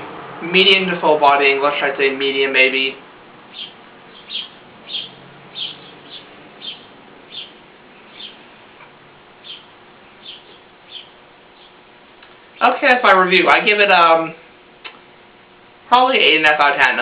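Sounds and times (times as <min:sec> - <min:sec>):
small bird chirping: 0:03.4 - 0:08.6, 0:09.4 - 0:11.9.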